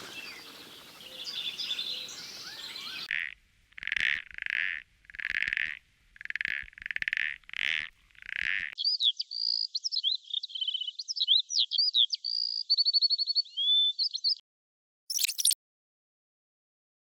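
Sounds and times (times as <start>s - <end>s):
songbird singing: 0.0s - 3.1s, 8.8s - 14.4s
frog rasping calls: 0.0s - 8.8s.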